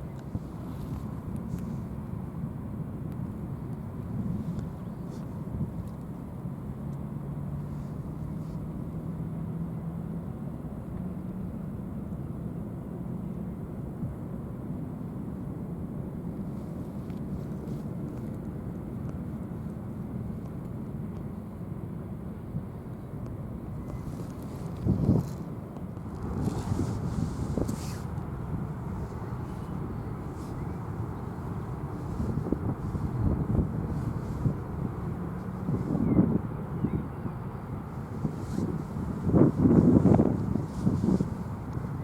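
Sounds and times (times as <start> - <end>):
large engines droning: 0.0 - 42.0
faint humming tones: 25.8 - 42.0.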